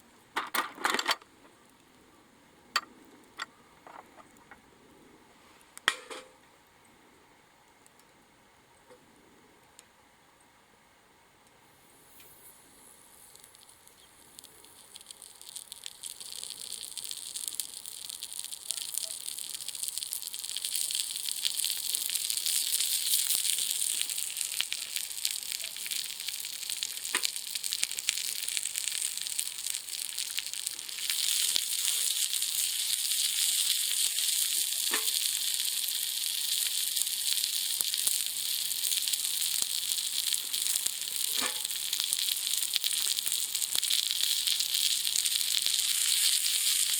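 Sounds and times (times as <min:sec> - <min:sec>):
wood fire sizzling and crackling: 0:11.7 - 0:46.9.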